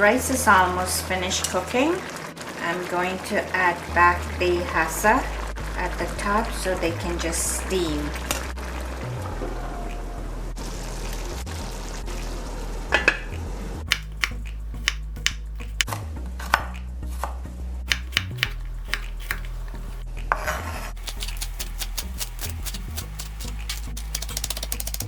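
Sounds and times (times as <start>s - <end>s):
utensil clinking against pot: 21.0s - 25.0s.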